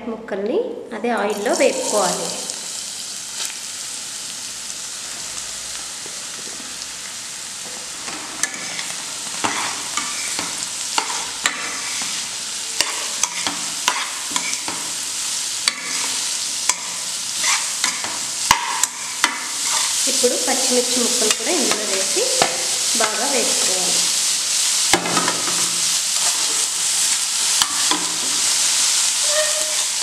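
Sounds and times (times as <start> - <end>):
carrot sizzling in hot oil: 1.2 - 30.0
steel spoon scraping a pan: 8.0 - 15.0, 15.6 - 20.1, 25.4 - 30.0.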